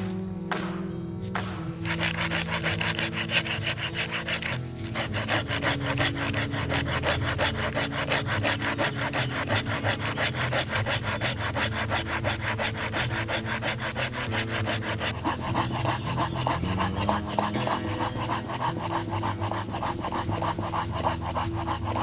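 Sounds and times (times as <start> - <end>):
hand saw cutting wood: 1.3 - 22.0.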